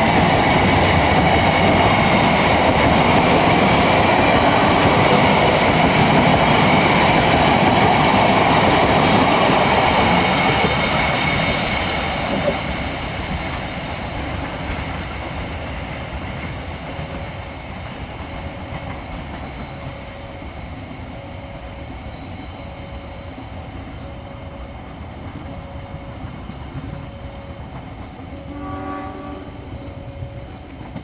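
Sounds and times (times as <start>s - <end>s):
diesel train rumbling: 0.0s - 31.0s.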